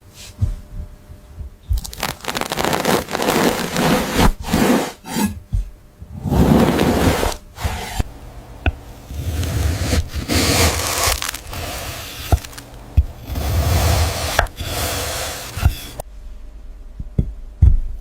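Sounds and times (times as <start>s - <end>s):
rough scraping and rubbing: 2.0s - 5.4s, 6.1s - 8.2s, 9.0s - 16.0s.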